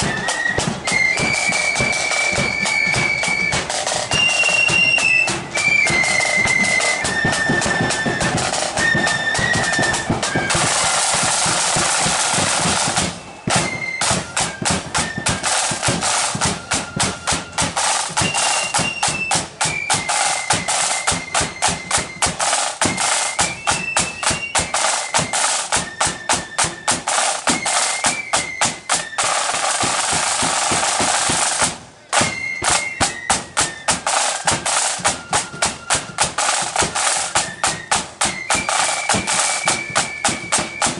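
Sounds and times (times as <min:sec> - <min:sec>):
high flutes: 0:00.0 - 0:40.9
snare drum rolls: 0:00.0 - 0:40.9.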